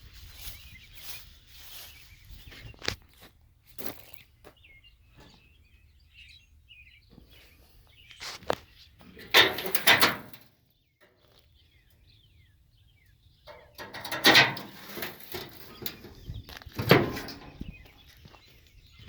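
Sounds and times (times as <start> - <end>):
faint bird chirps: 0.0 - 3.0
loud short scuffing noises: 8.1 - 8.9.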